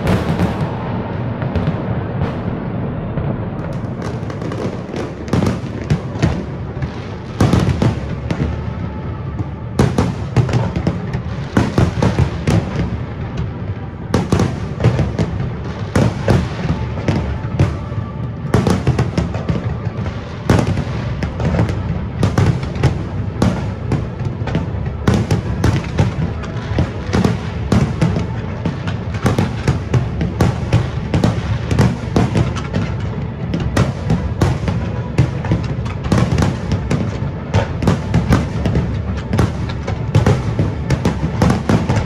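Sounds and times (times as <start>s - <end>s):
low rumble: 0.0s - 7.3s
fireworks bursting: 0.0s - 42.0s.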